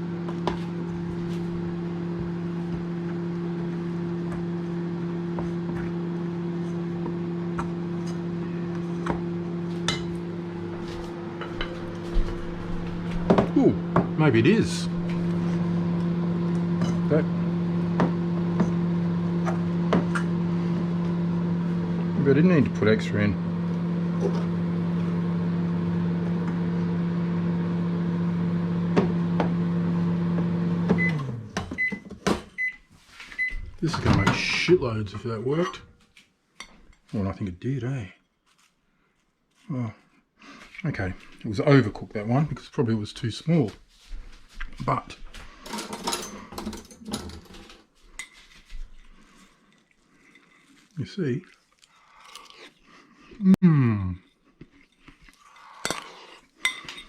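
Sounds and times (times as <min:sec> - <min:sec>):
microwave oven humming: 0:00.0 - 0:35.6, 0:44.6 - 0:47.9
microwave beeping: 0:23.4 - 0:34.8.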